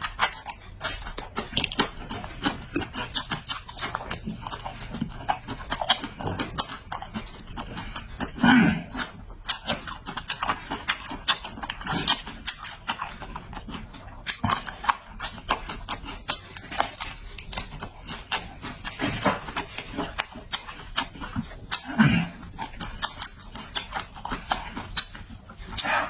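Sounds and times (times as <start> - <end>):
chewing and lip-smacking: 0.0 - 26.0
short mouth clicks: 25.7 - 26.0.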